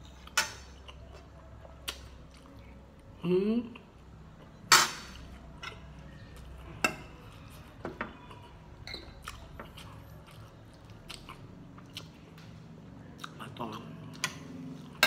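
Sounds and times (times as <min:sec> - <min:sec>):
chewing with wet mouth clicks: 0:00.2 - 0:03.1, 0:08.2 - 0:15.0.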